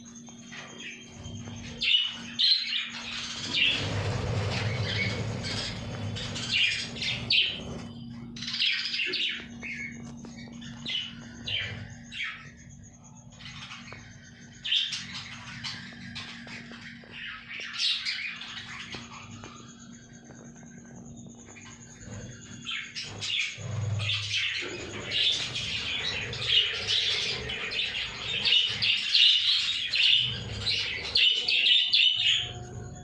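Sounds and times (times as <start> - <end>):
low hum: 0.0 - 33.0
budgerigars chirping and chattering: 0.5 - 33.0.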